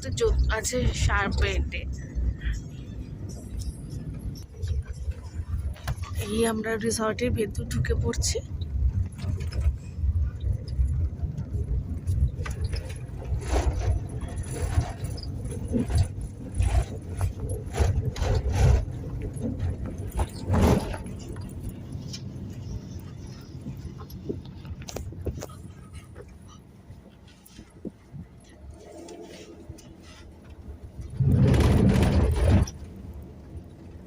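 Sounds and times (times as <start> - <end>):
low rumble of engine and tyres: 0.0 - 34.0
car knocks and rattles: 7.7 - 26.4, 30.0 - 34.0.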